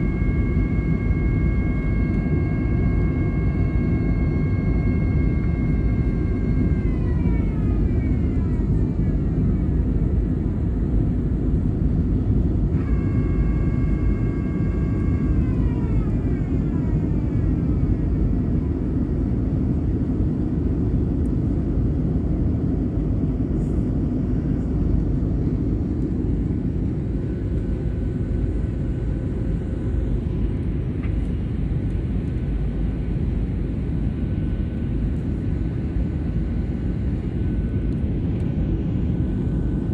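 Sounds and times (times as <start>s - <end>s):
high whining tone: 0.0s - 10.4s, 12.3s - 19.6s
aircraft engine rumble: 0.0s - 39.9s.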